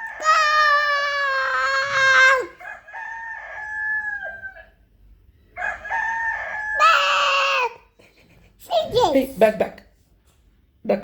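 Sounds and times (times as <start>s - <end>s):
child imitating rooster crow: 0.0s - 2.6s, 6.4s - 7.8s.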